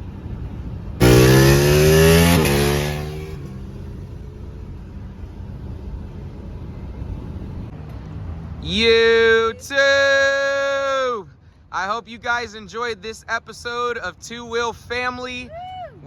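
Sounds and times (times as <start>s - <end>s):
motorcycle engine accelerating: 0.0s - 7.7s
low steady rumble: 0.0s - 7.8s.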